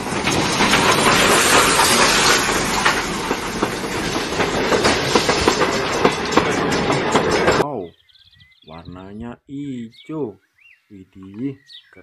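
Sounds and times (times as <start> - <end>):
train wheels clattering: 0.0 - 7.6
train wheels rushing on rails: 0.0 - 7.6.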